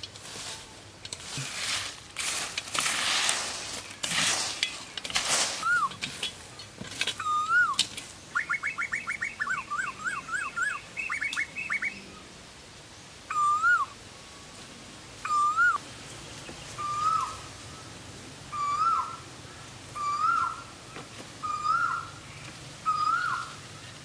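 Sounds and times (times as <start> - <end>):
bird whistled note: 5.6 - 5.9, 7.2 - 7.8, 13.3 - 13.9, 15.3 - 15.8
bird chattering: 7.2 - 12.0.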